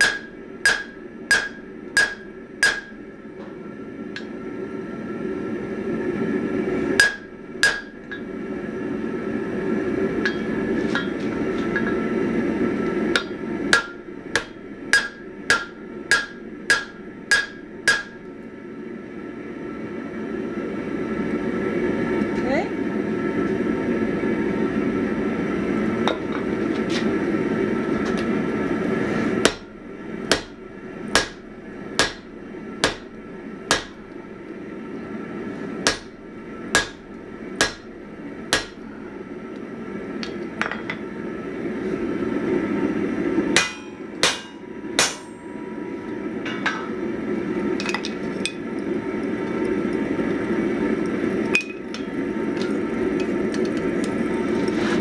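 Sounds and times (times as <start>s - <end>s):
hammer striking steel on anvil: 0.0s - 3.0s, 7.0s - 8.4s, 10.2s - 12.1s, 13.2s - 18.3s, 29.4s - 34.2s, 35.8s - 38.9s, 43.6s - 45.7s, 46.4s - 47.0s.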